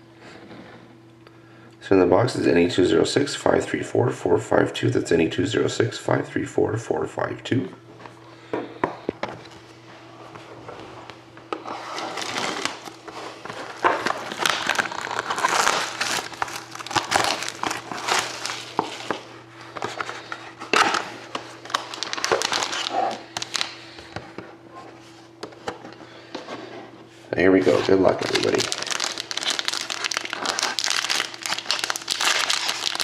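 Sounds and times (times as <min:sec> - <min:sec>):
plastic wrap tearing and crumpling: 0:11.7 - 0:19.3, 0:20.7 - 0:23.8, 0:27.8 - 0:33.0.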